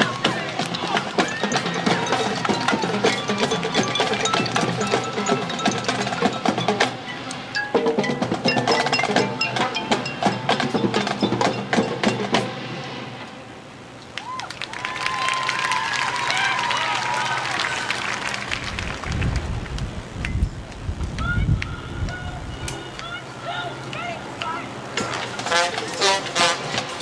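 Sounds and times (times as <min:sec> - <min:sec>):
marching percussion with mallets: 0:00.0 - 0:13.2, 0:24.9 - 0:27.0.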